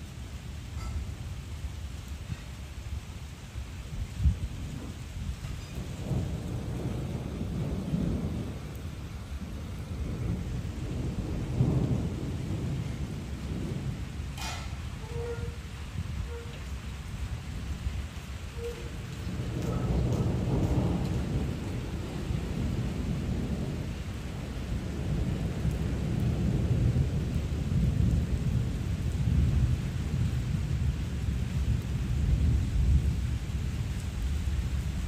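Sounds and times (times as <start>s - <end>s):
heavy rain falling: 0.0s - 35.0s.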